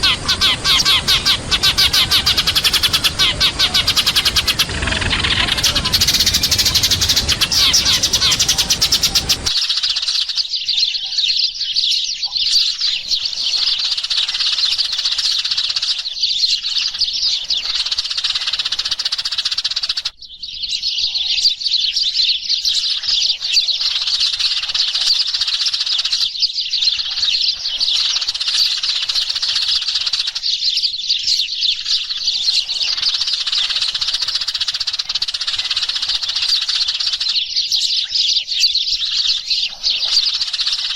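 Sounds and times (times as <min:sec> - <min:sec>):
loud full-range noise: 0:00.0 - 0:09.5
sparrows chirping: 0:00.0 - 0:40.9.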